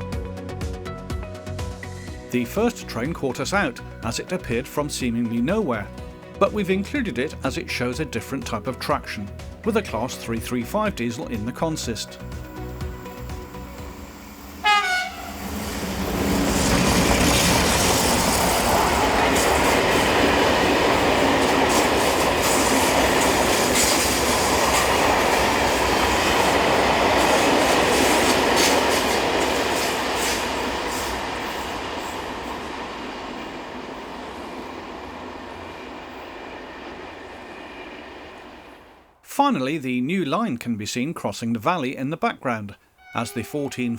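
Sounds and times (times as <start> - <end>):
rail clicks: 10.6 - 37.2
train wheels clattering: 13.9 - 34.0
train horn blast: 14.6 - 16.6.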